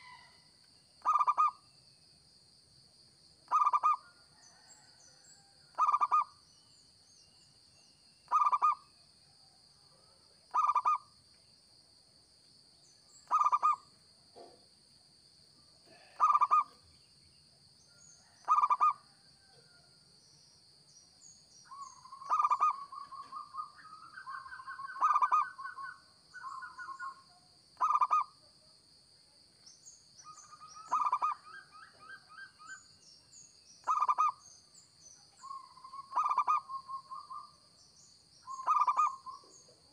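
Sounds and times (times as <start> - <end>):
dove cooing: 1.0 - 1.5, 3.5 - 4.0, 10.5 - 11.0, 13.3 - 13.8, 15.9 - 16.7, 18.4 - 19.0, 22.1 - 27.2, 27.8 - 28.3, 30.8 - 32.5, 35.5 - 37.4, 38.5 - 39.6.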